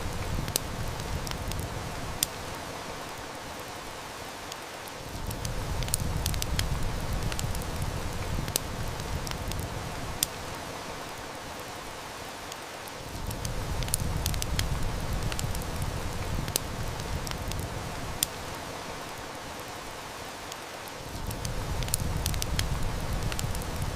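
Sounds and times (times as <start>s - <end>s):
heavy rain: 0.0s - 23.9s
wood fire crackling: 0.0s - 23.9s.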